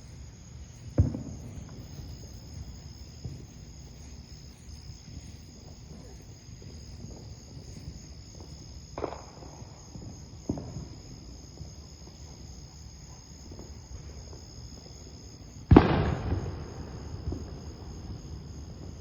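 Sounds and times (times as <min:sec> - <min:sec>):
distant fireworks popping: 0:00.0 - 0:19.0
high insect drone: 0:00.0 - 0:19.0
firework bang echoing: 0:00.9 - 0:03.5, 0:08.4 - 0:11.7, 0:15.6 - 0:19.0.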